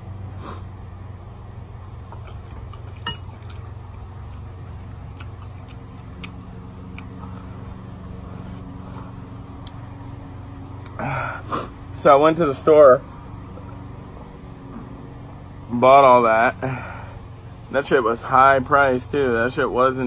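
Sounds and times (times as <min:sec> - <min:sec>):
low steady hum: 0:00.0 - 0:20.0
utensils clinking on bowl: 0:02.9 - 0:03.6.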